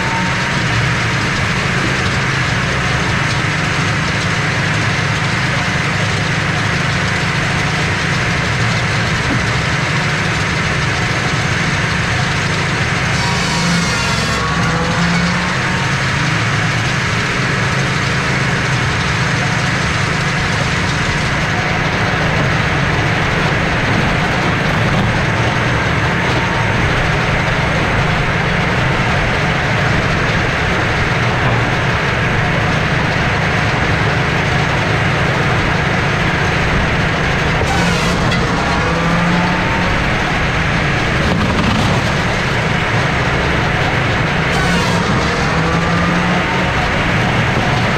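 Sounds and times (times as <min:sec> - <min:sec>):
firewood processor running: 0:00.0 - 0:47.9.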